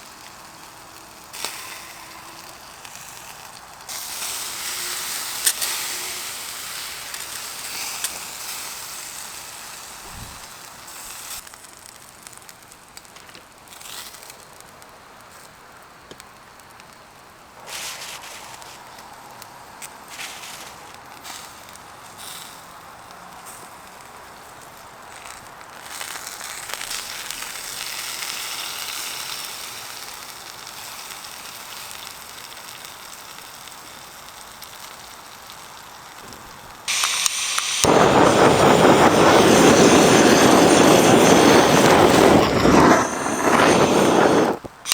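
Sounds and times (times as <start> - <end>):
steak sizzling on grill: 0.0 - 12.4, 25.2 - 44.9
wood fire crackling: 0.0 - 22.2, 24.0 - 28.4, 29.3 - 44.9.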